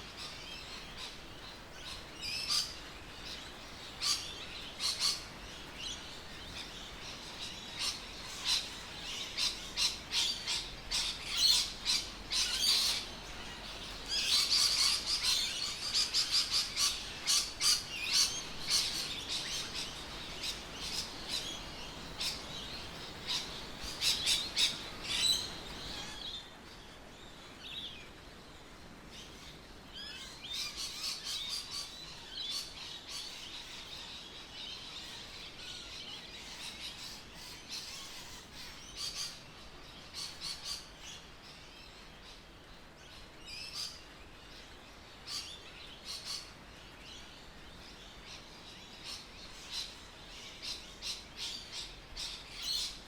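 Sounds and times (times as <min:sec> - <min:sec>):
birds chirping: 0:00.0 - 0:28.2.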